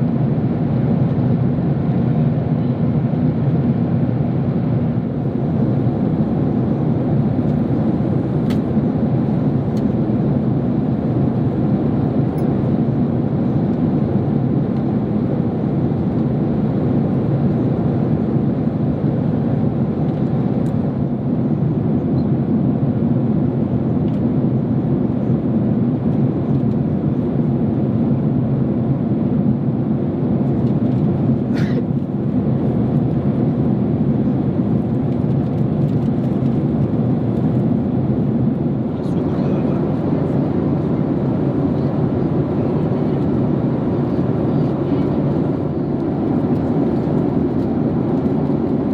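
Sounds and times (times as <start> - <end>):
airplane cabin rumble: 0.0 - 48.9.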